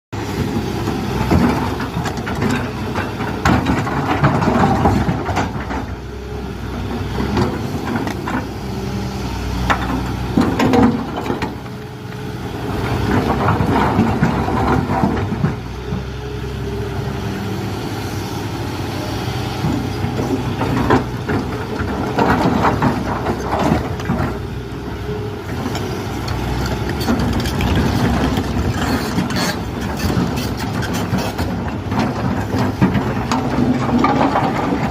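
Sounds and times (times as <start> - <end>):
excavator diesel engine running: 0.2 - 34.9
bucket scraping and clanking on rock: 26.3 - 34.9.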